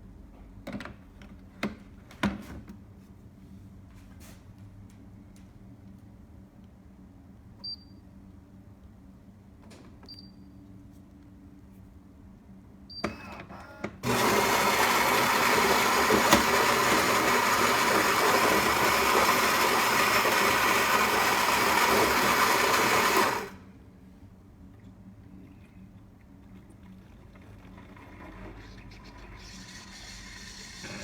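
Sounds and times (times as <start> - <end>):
coffee grinder grinding beans: 14.0 - 23.6, 28.2 - 31.0.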